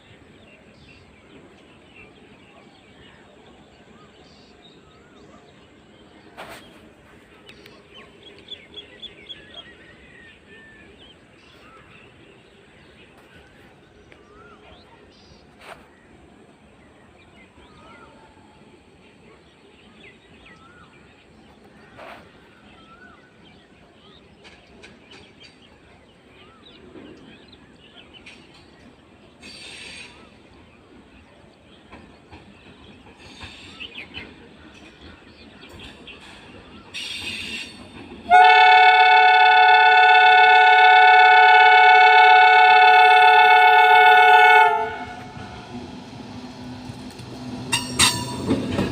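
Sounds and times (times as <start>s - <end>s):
electric train horn blast: 38.3s - 46.0s.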